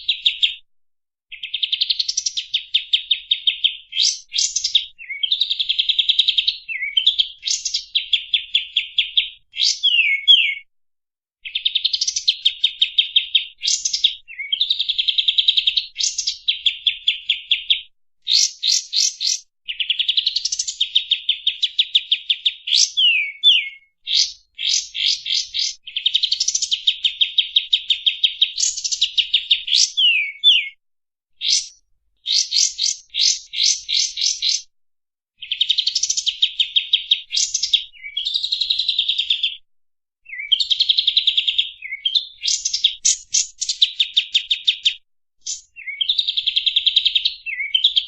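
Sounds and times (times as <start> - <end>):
bulbul singing: 6.3 - 10.7, 22.8 - 27.4, 28.0 - 30.8, 31.4 - 34.7.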